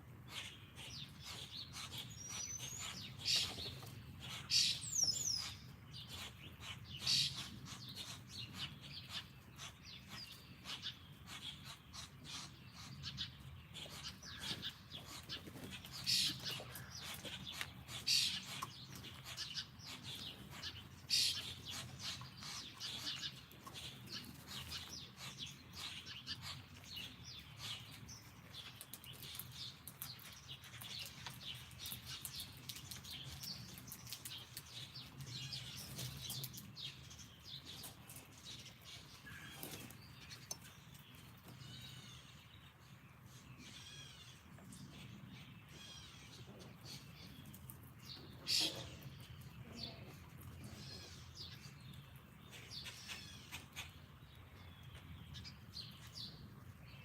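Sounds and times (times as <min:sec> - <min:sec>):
small songbirds chirping: 0:00.0 - 0:57.0.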